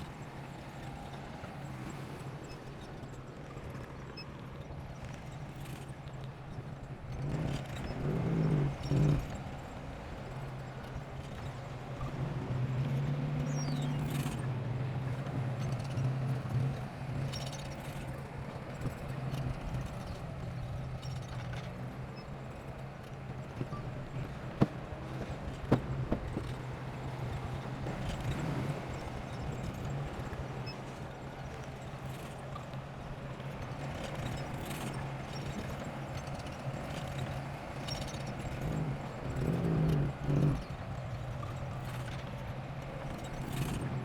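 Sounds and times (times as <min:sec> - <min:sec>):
diesel engine humming: 0:23.1 - 0:29.0.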